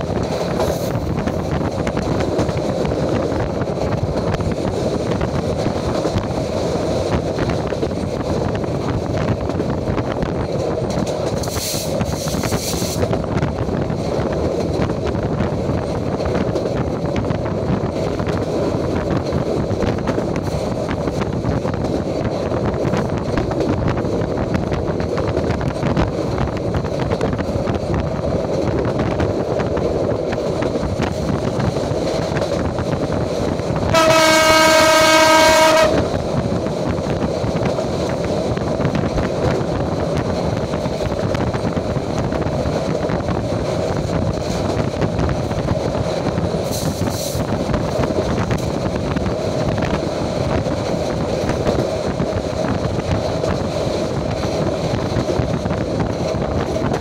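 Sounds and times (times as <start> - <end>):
train rumble and rattle: 0.0 - 57.0
train horn blast: 33.9 - 36.1.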